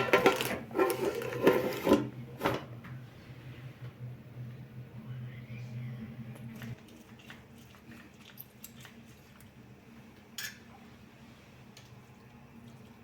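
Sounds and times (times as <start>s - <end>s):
kitchenware clicking and clinking: 0.0s - 2.7s
faint low hum: 1.6s - 13.0s.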